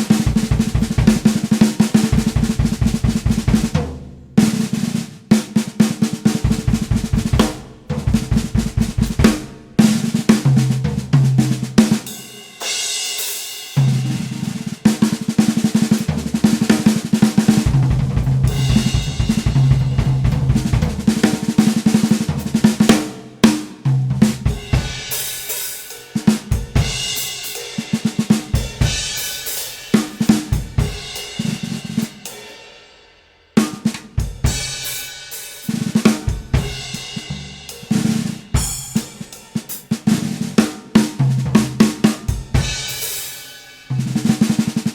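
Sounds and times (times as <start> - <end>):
bass drum: 0.0 - 4.7, 6.3 - 11.8, 16.1 - 21.5, 24.0 - 25.1
snare drum rolls: 0.0 - 12.0, 13.8 - 24.4
cymbals: 4.4 - 23.8, 24.4 - 44.9.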